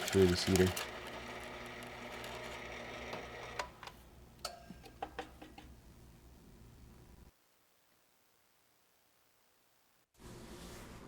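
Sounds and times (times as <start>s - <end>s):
drill press motor hum: 0.0s - 3.8s.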